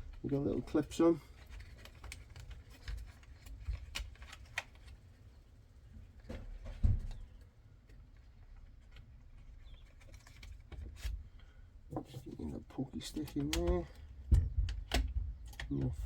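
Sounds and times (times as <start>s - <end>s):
light plastic clicks and taps: 13.1s - 16.0s.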